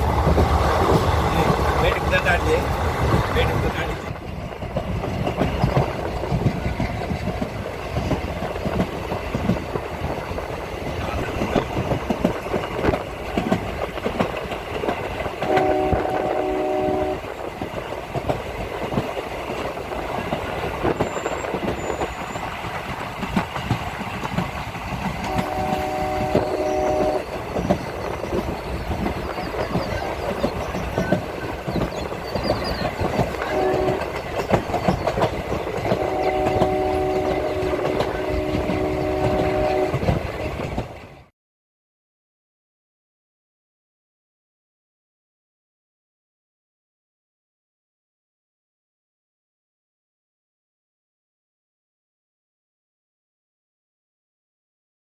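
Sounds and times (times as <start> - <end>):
train rumble and wheel clatter: 0.0 - 41.3
train horn chord: 15.4 - 17.3, 25.2 - 27.2, 33.4 - 34.2, 35.9 - 40.1.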